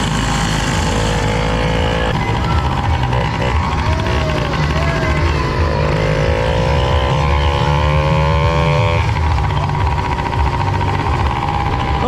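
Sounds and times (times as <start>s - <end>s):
two-stroke engine revving: 0.0s - 12.0s.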